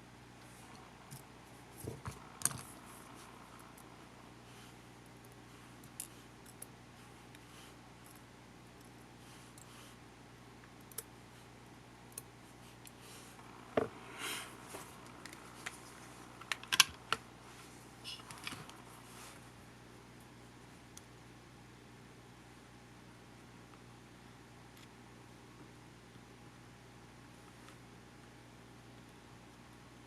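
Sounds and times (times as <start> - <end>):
small parts clicking and scraping: 1.1 - 3.9, 5.2 - 6.7, 14.9 - 17.2.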